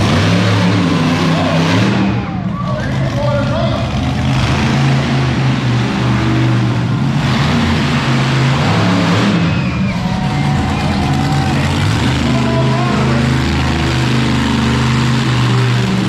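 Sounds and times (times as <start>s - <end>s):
monster truck engine running: 0.0s - 16.0s.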